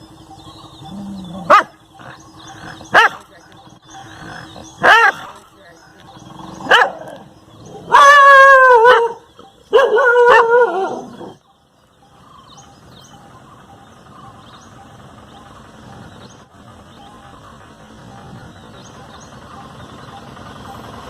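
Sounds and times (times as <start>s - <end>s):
dog barking long barks: 1.4s - 1.8s, 2.9s - 3.2s, 4.8s - 5.4s, 6.6s - 7.2s, 7.8s - 11.3s.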